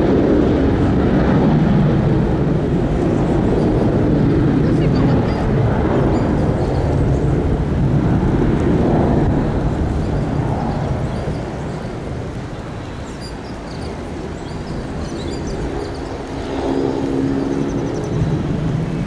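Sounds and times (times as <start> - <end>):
jet engine rumble: 0.0 - 19.0.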